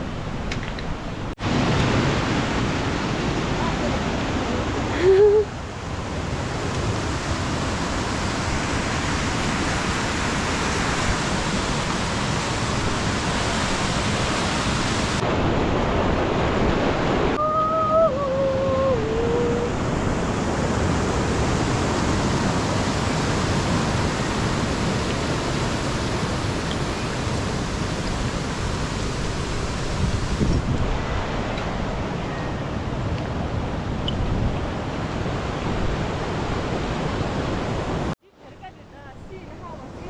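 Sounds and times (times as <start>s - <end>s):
water rushing: 1.1s - 38.2s
wavering downward sliding tone: 17.4s - 19.8s.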